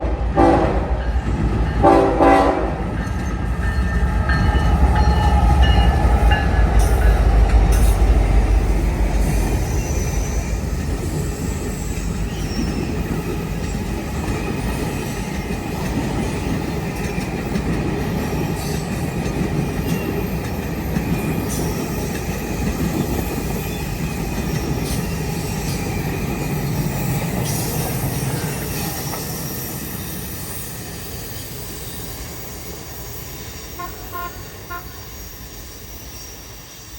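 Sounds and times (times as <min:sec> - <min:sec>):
train horn blast: 0:00.0 - 0:01.1, 0:01.8 - 0:02.9, 0:33.7 - 0:35.1
diesel locomotive rumble: 0:00.1 - 0:30.7
train wheels clicking on rails: 0:01.1 - 0:36.9.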